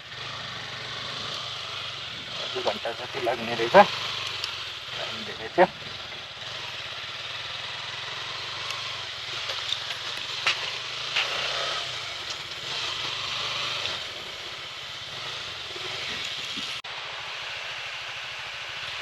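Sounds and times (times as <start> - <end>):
vehicle engine humming: 0.0 - 18.8.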